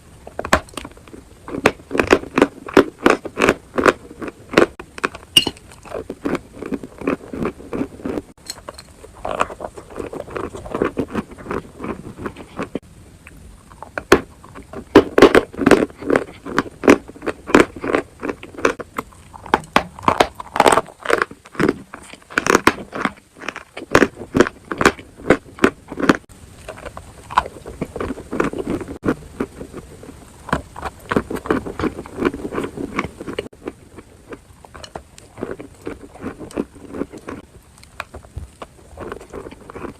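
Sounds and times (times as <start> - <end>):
chewing crunchy chalk: 9.0 - 12.8, 13.7 - 39.9.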